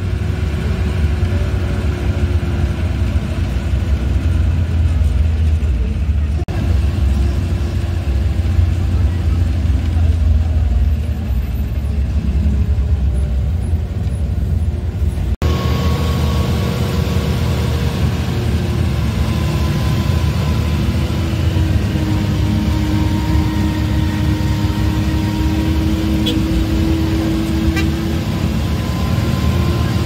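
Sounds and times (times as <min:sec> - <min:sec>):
vehicle engine and road hum: 0:00.0 - 0:30.0.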